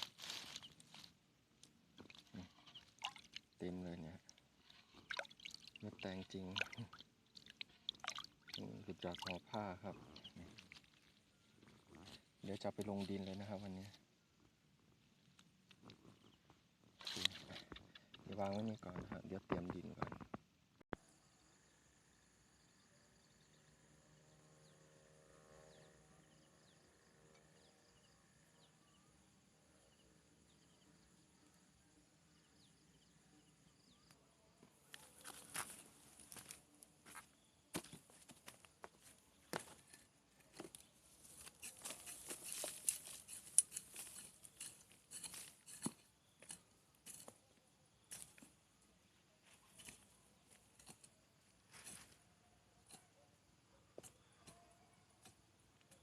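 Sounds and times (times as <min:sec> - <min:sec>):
soil rustling and scraping: 0:00.0 - 0:08.0, 0:08.6 - 0:14.0, 0:15.0 - 0:20.4, 0:34.9 - 0:36.8, 0:37.4 - 0:48.5, 0:49.5 - 0:52.2.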